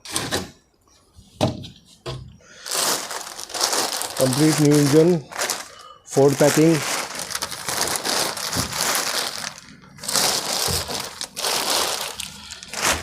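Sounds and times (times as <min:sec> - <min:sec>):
packing wrap crinkling: 0:02.6 - 0:13.0.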